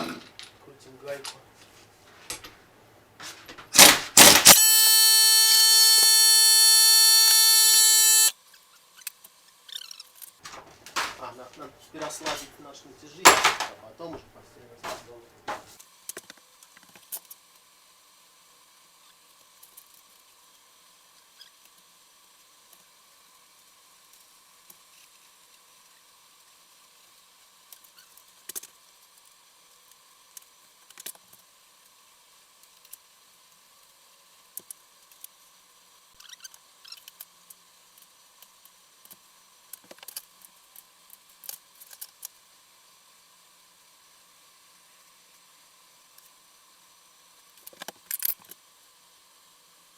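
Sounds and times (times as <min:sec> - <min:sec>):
low background hiss: 0:00.1 - 0:03.4, 0:10.5 - 0:15.6
hand tools clicking on metal: 0:10.5 - 0:12.5.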